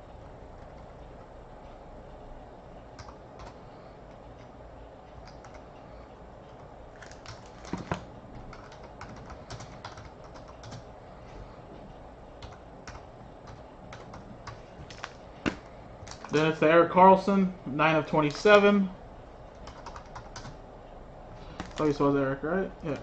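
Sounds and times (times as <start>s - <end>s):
typing on computer keyboard: 3.0s - 3.6s, 5.1s - 5.7s, 7.0s - 10.8s, 12.4s - 15.1s, 19.6s - 20.6s.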